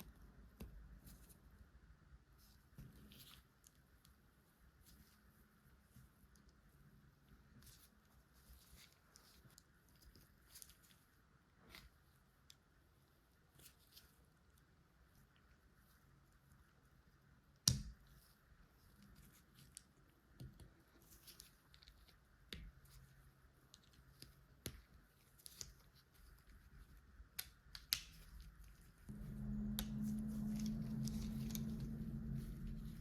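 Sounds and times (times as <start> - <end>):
steady low hum: 29.0 - 33.0.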